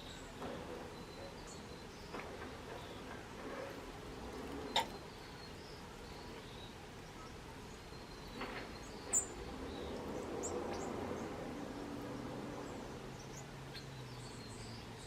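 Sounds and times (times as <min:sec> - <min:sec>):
steady outdoor hiss: 0:00.0 - 0:15.0
faint high bird chirps: 0:04.6 - 0:10.9.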